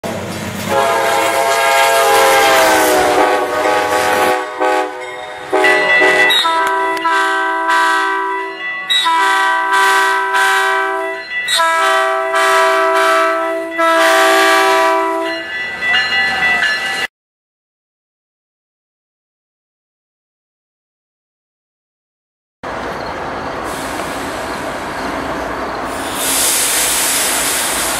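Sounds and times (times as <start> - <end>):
locomotive air horn blasts: 0.7 - 15.4.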